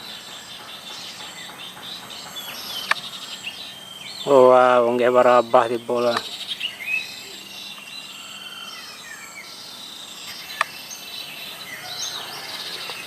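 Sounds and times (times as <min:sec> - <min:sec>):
insect hum: 0:00.0 - 0:13.0
small birds chirping: 0:00.0 - 0:13.0
sharp click: 0:02.8 - 0:03.0.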